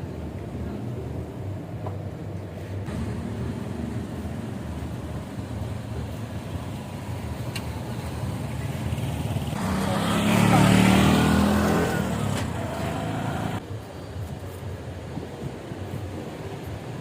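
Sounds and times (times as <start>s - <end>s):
road and wind noise: 0.0s - 17.0s
motorcycle engine running: 2.9s - 13.6s.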